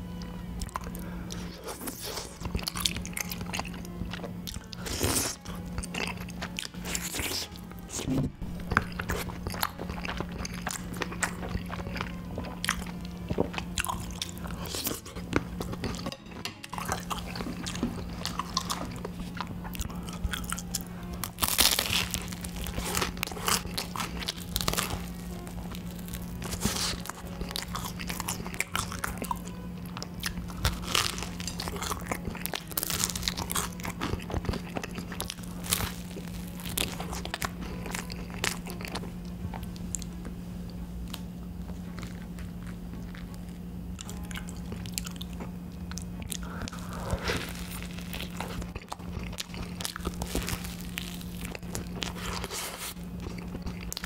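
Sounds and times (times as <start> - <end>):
close chewing and mouth sounds: 0.0 - 54.0
steady low hum: 0.0 - 54.0
waffle crunching: 0.6 - 54.0.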